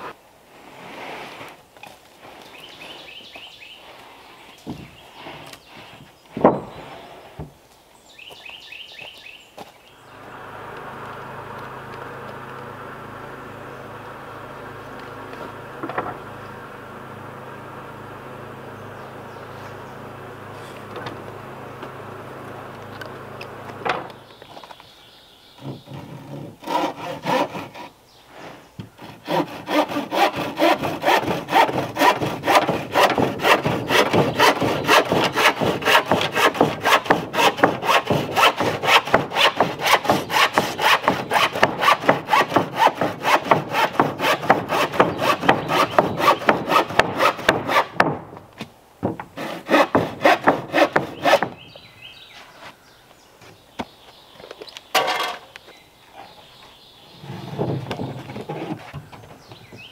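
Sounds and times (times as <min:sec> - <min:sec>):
hand saw cutting wood: 0:25.6 - 0:48.2, 0:49.3 - 0:51.7, 0:57.2 - 0:59.9.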